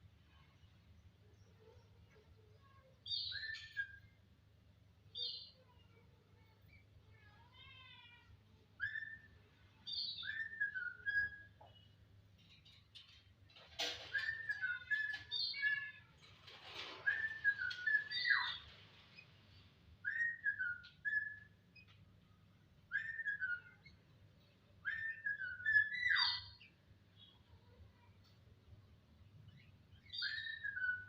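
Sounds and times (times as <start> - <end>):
starling whistling: 17.0 - 18.6.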